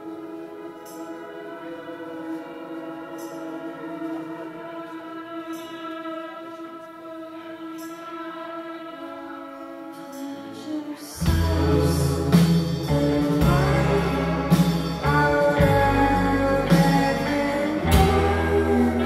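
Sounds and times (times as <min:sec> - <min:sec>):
full rock band with drums: 0:11.2 - 0:19.0
rock band droning chord: 0:11.2 - 0:19.0.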